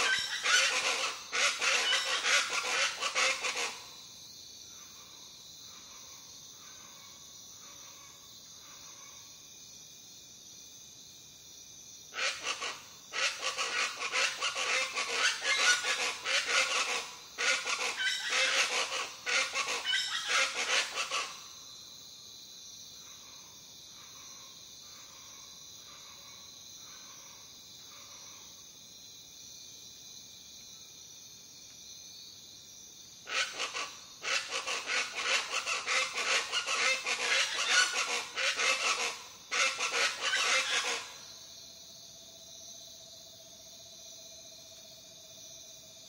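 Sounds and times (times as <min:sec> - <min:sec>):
harsh chorus of birds calling: 0:00.0 - 0:03.8, 0:12.2 - 0:21.4, 0:33.3 - 0:41.2
insects chirring: 0:00.0 - 0:46.0.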